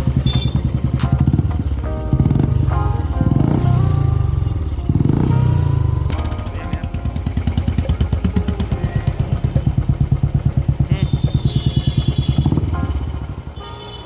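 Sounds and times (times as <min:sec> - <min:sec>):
motorcycle engine idling thump: 0:06.1 - 0:11.6.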